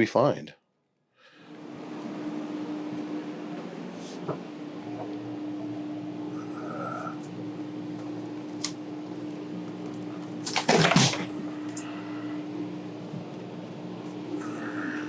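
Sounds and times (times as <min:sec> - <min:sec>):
steady hum: 0:01.3 - 0:15.0
knocks and cracks of fittings torn out: 0:10.4 - 0:11.4.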